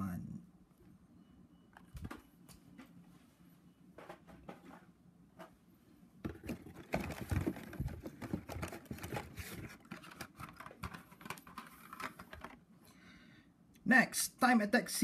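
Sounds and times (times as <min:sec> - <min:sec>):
plastic packaging clicking and crinkling: 0:06.2 - 0:12.6.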